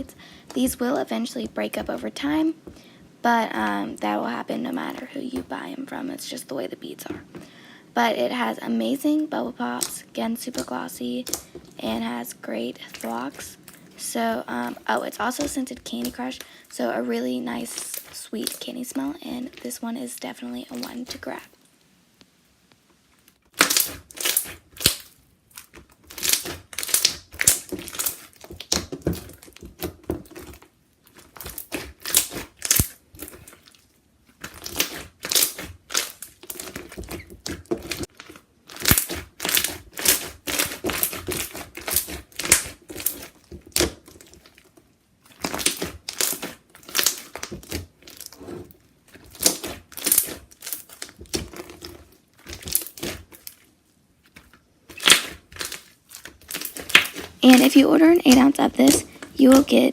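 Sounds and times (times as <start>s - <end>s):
slime bubbles popping and crackling: 9.6s - 16.5s, 17.3s - 19.8s, 20.7s - 21.6s, 23.4s - 59.9s.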